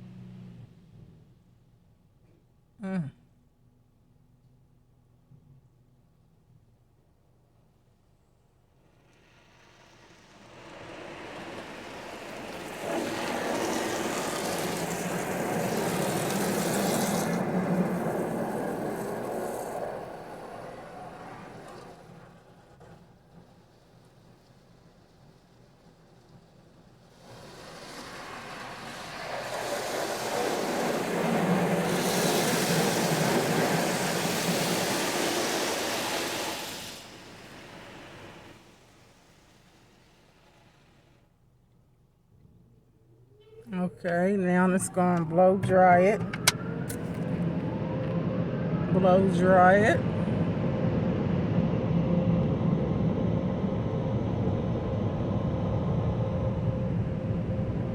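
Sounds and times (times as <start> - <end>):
car wash water spraying: 8.7 - 41.3.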